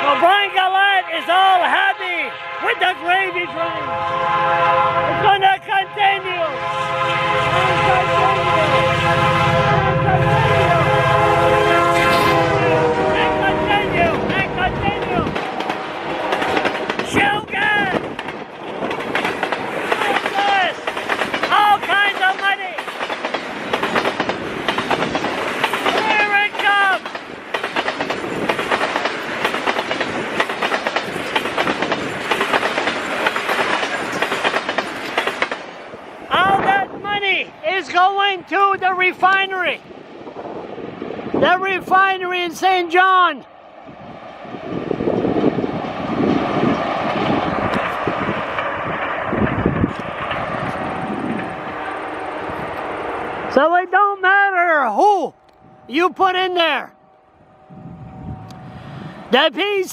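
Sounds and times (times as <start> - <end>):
train horn chord: 0.0 - 17.0, 51.5 - 53.5
train rumble: 0.0 - 53.9, 54.9 - 59.9
train wheels clacking: 14.1 - 36.2.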